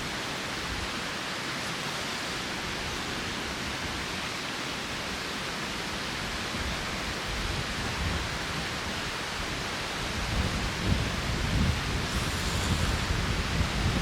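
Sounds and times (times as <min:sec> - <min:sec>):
wind rushing through trees: 0:00.0 - 0:14.0
wind buffeting microphone: 0:06.6 - 0:14.0.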